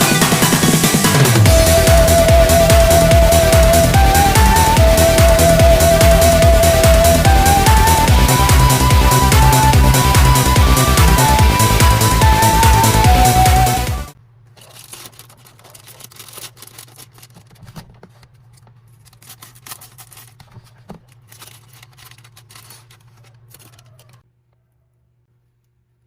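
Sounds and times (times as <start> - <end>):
electronic background music: 0.0 - 14.2
faint rustling: 14.4 - 24.7.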